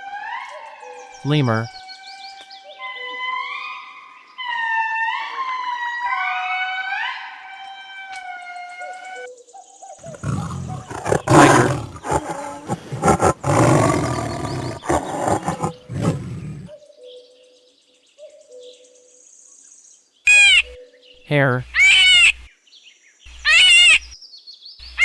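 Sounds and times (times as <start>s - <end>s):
tiger roaring and growling: 10.0s - 16.7s.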